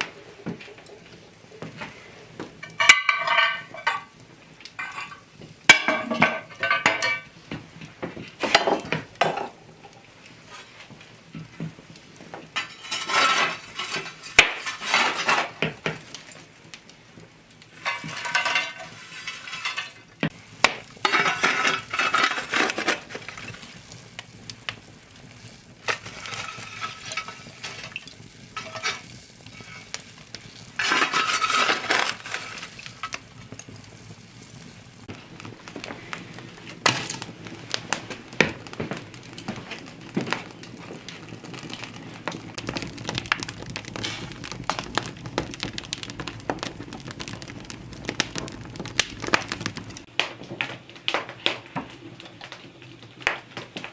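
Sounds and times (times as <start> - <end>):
utensil clinking against dish: 2.6 - 4.1, 4.8 - 7.3
spoon stirring and scraping dish: 2.6 - 4.2, 12.6 - 16.1, 17.8 - 23.8, 25.9 - 33.2.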